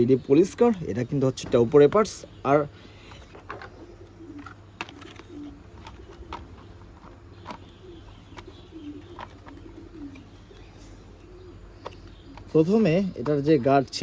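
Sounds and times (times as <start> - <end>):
bird cooing: 2.2 - 13.4.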